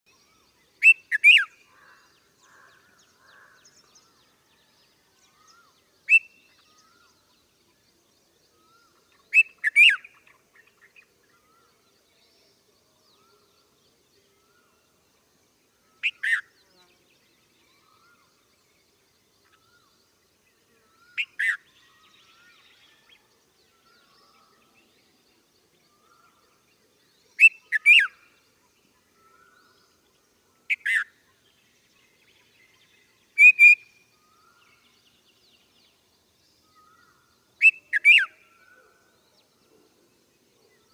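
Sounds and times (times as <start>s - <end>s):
faint bird chirps: 0.1s - 40.9s
bulbul calling: 0.8s - 2.0s, 16.0s - 16.5s, 27.4s - 28.3s, 30.7s - 31.1s, 33.4s - 34.0s, 37.6s - 39.1s.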